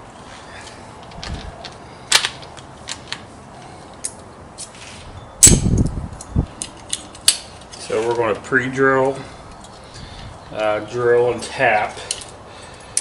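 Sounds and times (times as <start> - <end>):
metal tools clinking: 11.4 - 13.0.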